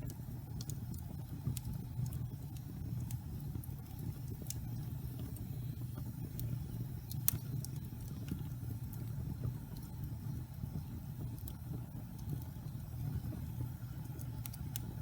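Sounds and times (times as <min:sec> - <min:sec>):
fire crackling and popping: 0:00.0 - 0:15.0
logs burning with low rumble: 0:00.0 - 0:15.0.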